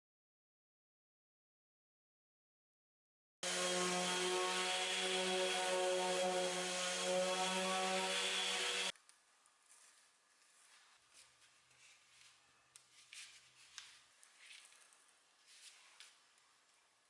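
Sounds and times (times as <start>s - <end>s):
electric power tool on wood: 3.4s - 9.0s.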